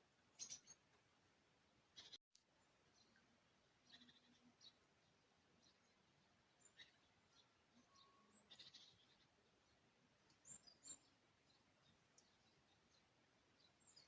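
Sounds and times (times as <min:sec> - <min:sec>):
faint campfire crackling: 0:00.0 - 0:14.0
faint high bird chirps: 0:00.3 - 0:00.9, 0:01.9 - 0:02.2, 0:03.8 - 0:14.0.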